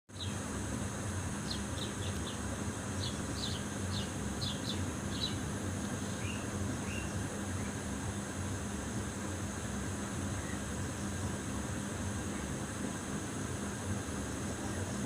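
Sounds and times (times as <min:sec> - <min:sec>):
small bird chirping: 0:00.1 - 0:00.4, 0:01.4 - 0:07.8
steady low hum and hiss: 0:00.1 - 0:15.0.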